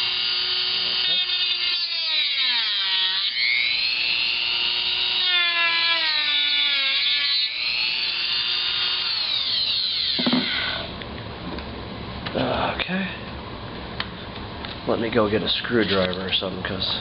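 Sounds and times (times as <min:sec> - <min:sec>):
rotary tool whining cutting plastic: 0:00.0 - 0:10.9.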